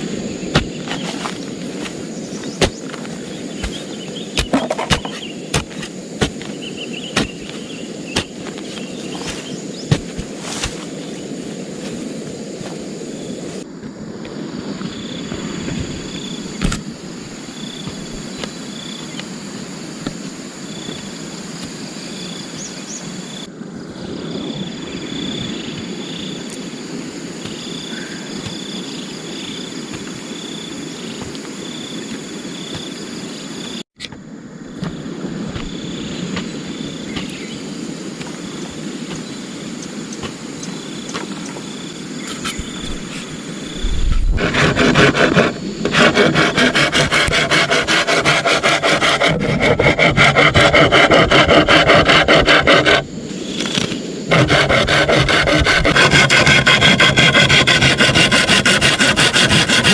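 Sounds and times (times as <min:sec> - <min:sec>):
insects chirping: 0:00.0 - 0:59.9
wood rubbing and rasping: 0:42.3 - 0:59.9.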